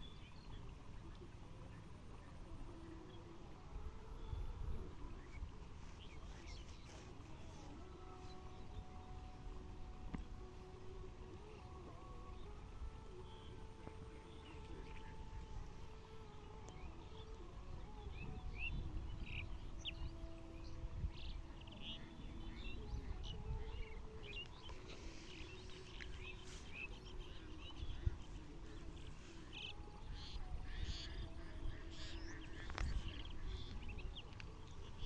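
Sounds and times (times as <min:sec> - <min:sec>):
low outdoor rumble: 0:00.0 - 0:35.0
small birds chirping: 0:05.0 - 0:09.3, 0:13.2 - 0:35.0.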